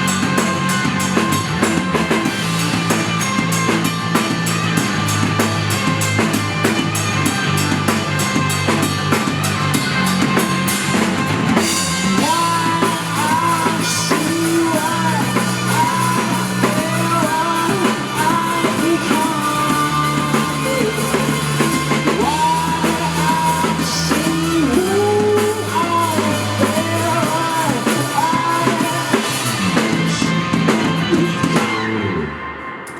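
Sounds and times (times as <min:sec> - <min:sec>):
live rock band playing: 0:00.0 - 0:32.9
person singing: 0:11.6 - 0:32.9.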